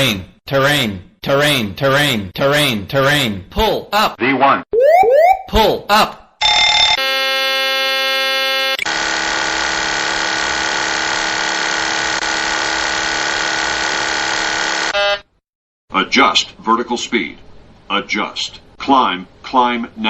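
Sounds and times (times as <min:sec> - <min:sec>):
brief warning tone: 0:04.8 - 0:05.6.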